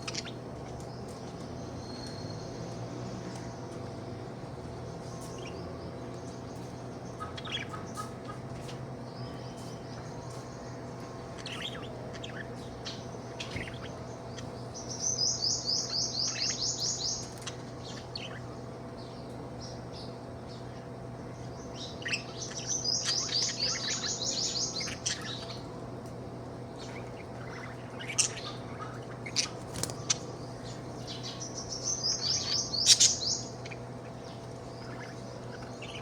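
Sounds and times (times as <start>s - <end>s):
steady low hum: 0.0s - 36.0s
budgie chirping: 26.7s - 36.0s.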